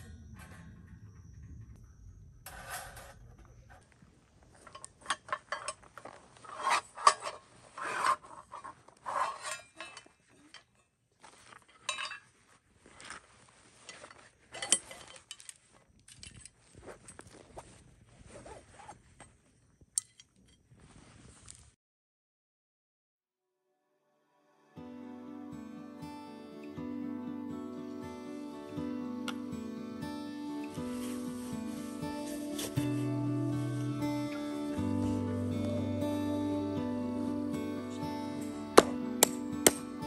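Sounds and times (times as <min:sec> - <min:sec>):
metal pots and dishes clattering: 0:04.7 - 0:05.9, 0:09.2 - 0:10.8, 0:11.7 - 0:12.3.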